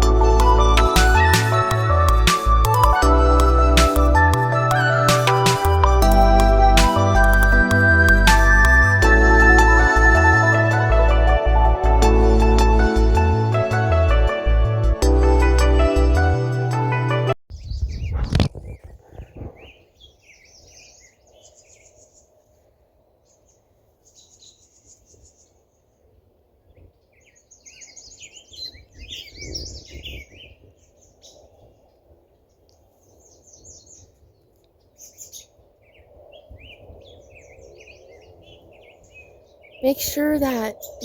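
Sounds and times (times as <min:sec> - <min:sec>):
songbirds chirping: 0:17.5 - 0:41.0.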